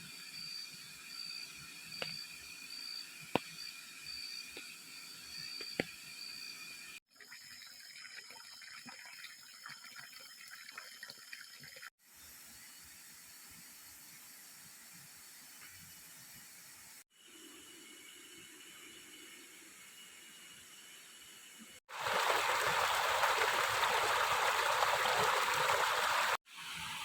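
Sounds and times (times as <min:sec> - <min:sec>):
water splashing and trickling: 0:07.0 - 0:12.0, 0:21.9 - 0:26.4
rush of water: 0:21.9 - 0:26.4
running water: 0:21.9 - 0:27.0.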